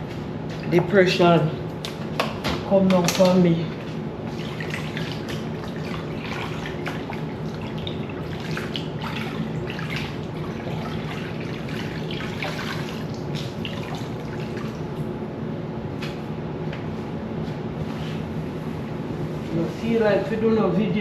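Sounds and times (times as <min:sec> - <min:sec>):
water splashing: 0:04.3 - 0:14.9.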